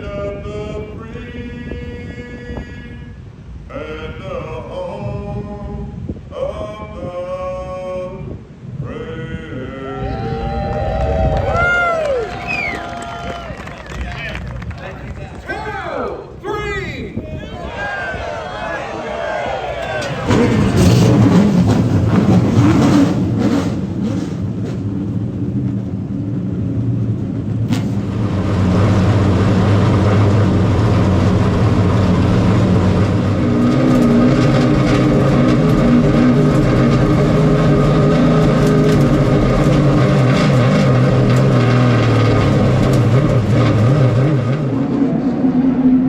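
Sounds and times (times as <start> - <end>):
stock car engines running: 9.6 - 16.6, 17.8 - 46.0.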